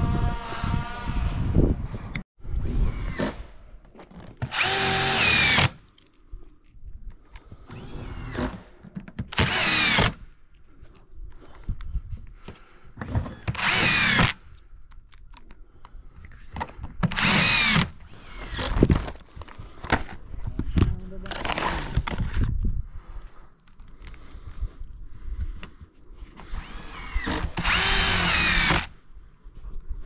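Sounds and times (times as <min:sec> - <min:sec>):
power drill running: 0:04.5 - 0:05.8, 0:07.7 - 0:08.6, 0:09.3 - 0:10.2, 0:13.3 - 0:14.4, 0:17.1 - 0:18.8, 0:26.5 - 0:28.9.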